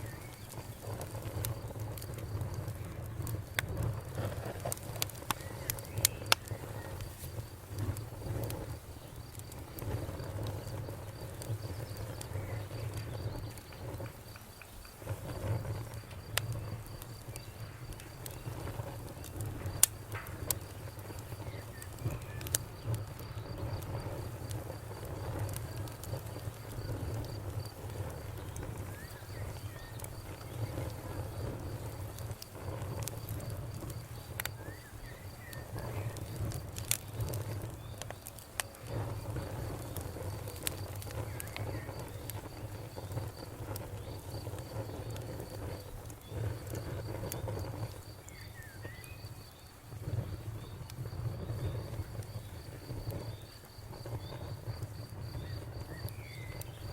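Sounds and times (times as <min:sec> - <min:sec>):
campfire crackling and popping: 0:00.0 - 0:56.9
cricket chirping: 0:00.0 - 0:56.9.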